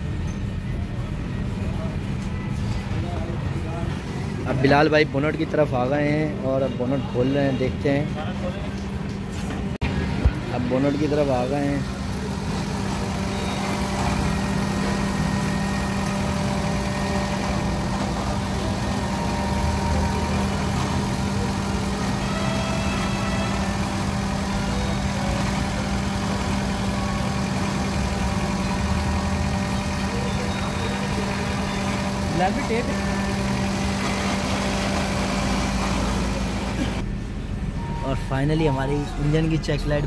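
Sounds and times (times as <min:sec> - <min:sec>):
car engine idling: 0:11.0 - 0:37.6.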